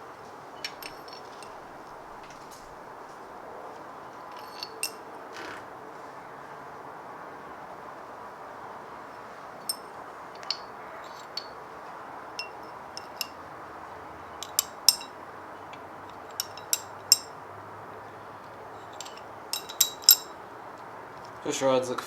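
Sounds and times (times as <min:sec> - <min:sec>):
metal pushrods clinking: 0:00.6 - 0:02.7, 0:04.3 - 0:05.1, 0:09.6 - 0:11.6, 0:12.3 - 0:13.4, 0:14.3 - 0:17.4, 0:18.4 - 0:20.4.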